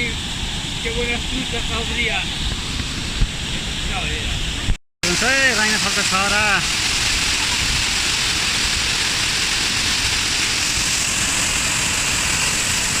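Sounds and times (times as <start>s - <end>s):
waterfall rushing: 3.4s - 13.0s.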